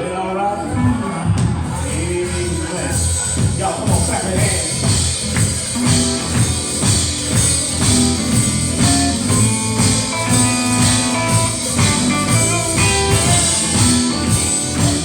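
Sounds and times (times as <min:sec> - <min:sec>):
upbeat gospel band instrumental: 0:00.3 - 0:15.0
tambourine: 0:02.5 - 0:15.0.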